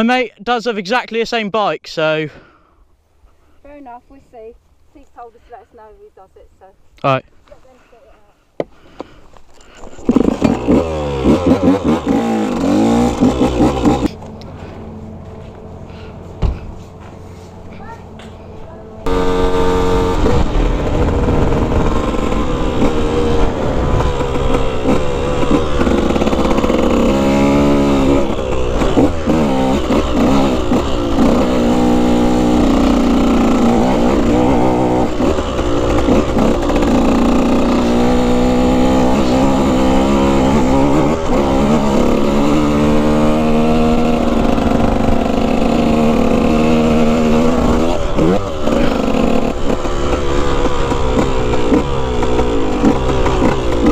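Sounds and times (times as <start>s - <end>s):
dirt bike engine revving: 9.6s - 15.0s, 19.0s - 53.9s.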